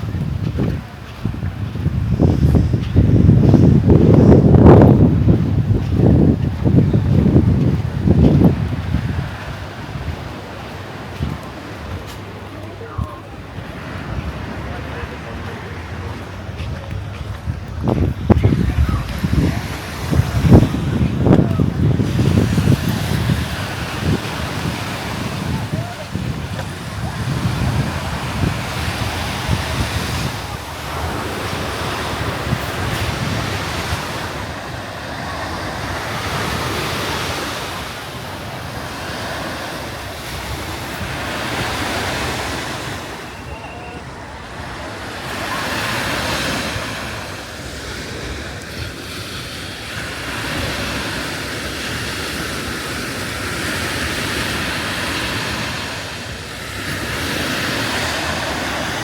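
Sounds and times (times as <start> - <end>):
wind buffeting microphone: 0.0 - 43.3
sea waves breaking on beach: 0.0 - 59.0.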